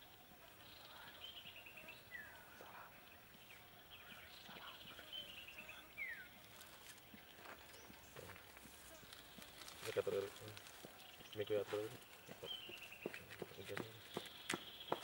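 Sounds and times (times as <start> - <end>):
bird calls: 0.0 - 15.0.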